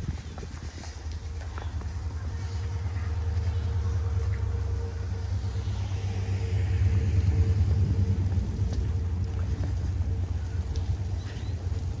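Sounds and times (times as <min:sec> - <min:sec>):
vehicle passing on snow: 0:00.0 - 0:12.0
wind buffeting microphone: 0:00.0 - 0:12.0.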